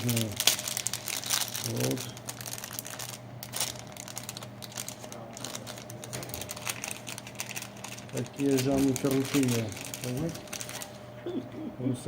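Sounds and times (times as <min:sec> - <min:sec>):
light clicks and packaging rustling: 0:02.8 - 0:10.9.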